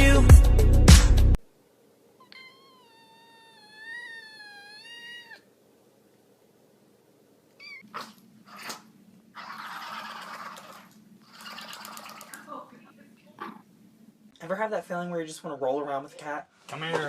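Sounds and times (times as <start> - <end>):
cat meowing: 2.2 - 5.5, 7.6 - 8.8.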